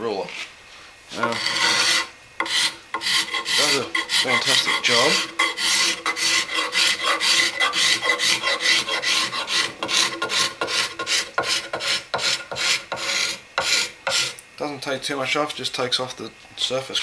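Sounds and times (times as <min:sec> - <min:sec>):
ruler scraping wooden handle: 0:01.1 - 0:14.4.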